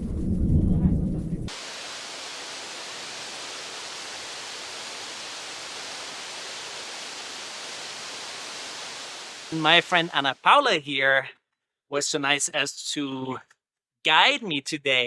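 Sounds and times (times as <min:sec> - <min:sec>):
steady rushing noise: 0:00.0 - 0:10.4.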